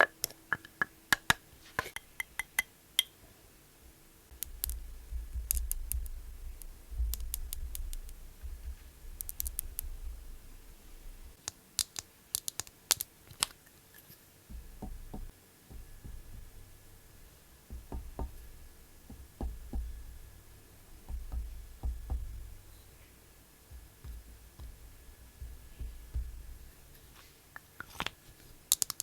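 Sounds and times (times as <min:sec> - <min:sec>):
makeup items clicking and tapping: 0:00.0 - 0:03.1, 0:04.3 - 0:10.5, 0:11.3 - 0:13.6, 0:14.5 - 0:29.0
low handling rumble: 0:04.8 - 0:11.4, 0:14.5 - 0:27.2.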